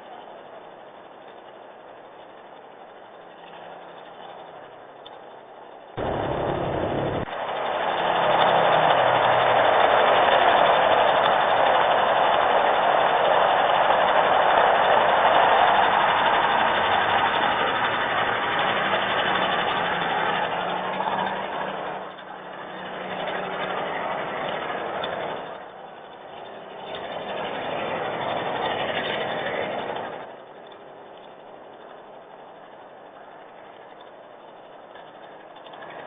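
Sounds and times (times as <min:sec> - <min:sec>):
vehicle engine: 0:00.0 - 0:36.0
tyres hissing on wet road: 0:06.0 - 0:30.3.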